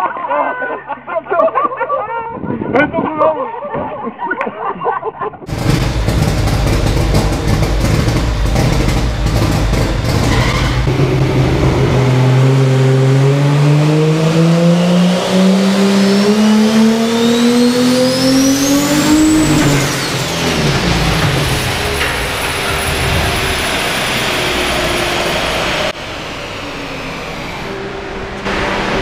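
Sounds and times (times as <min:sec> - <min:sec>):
engine crackling and popping: 0:05.5 - 0:13.9, 0:17.1 - 0:26.0
car engine pulling hard: 0:05.5 - 0:29.0
high whine: 0:05.5 - 0:29.0.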